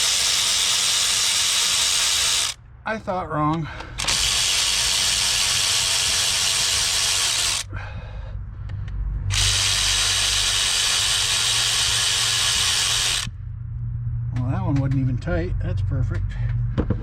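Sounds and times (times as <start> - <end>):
handheld power tool running: 0.0 - 2.6, 4.0 - 7.7, 9.3 - 13.3.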